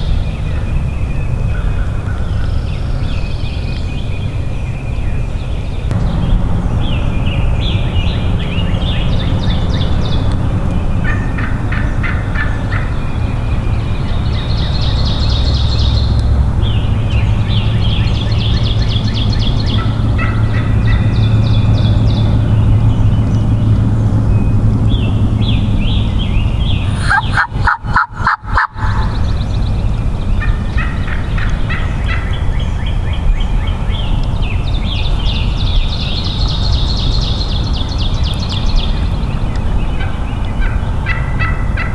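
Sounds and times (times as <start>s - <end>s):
turkeys gobbling: 11.0s - 13.1s, 26.8s - 29.5s.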